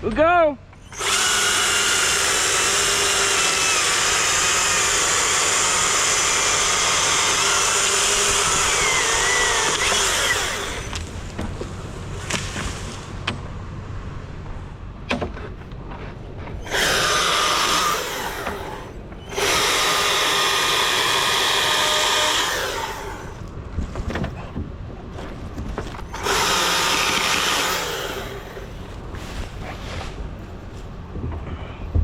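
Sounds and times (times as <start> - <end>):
chainsaw running: 0.8 - 11.2, 16.6 - 23.5, 26.1 - 29.0.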